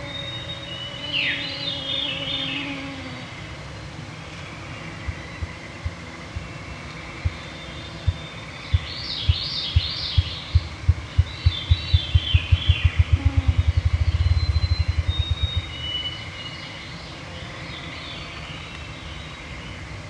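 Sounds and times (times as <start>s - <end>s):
songbird singing: 0.0s - 20.0s
grouse wing drumming: 8.1s - 16.0s.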